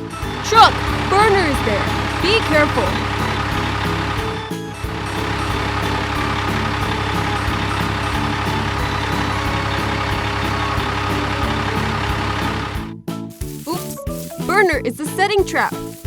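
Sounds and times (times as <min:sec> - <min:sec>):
background music: 0:00.0 - 0:12.9
truck engine running: 0:00.0 - 0:12.9.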